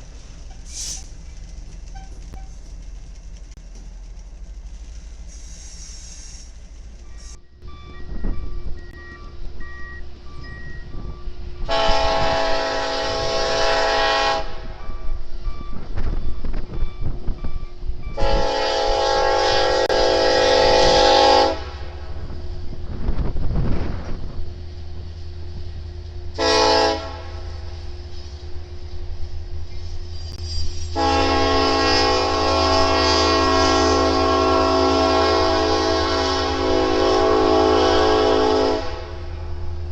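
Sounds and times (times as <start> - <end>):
passing train rumble: 0.0 - 39.9
locomotive air horn blast: 11.6 - 14.8, 18.2 - 22.1, 26.4 - 27.7, 30.7 - 39.4.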